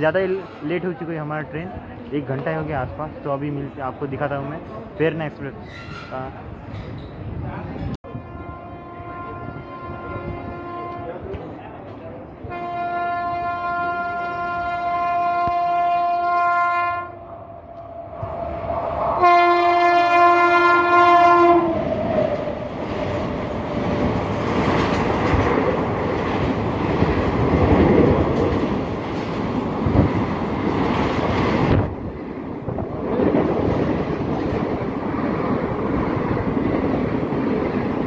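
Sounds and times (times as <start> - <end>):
train rumbling past: 0.0 - 38.0
train horn blasts: 8.0 - 11.4, 12.4 - 17.4, 19.2 - 21.9.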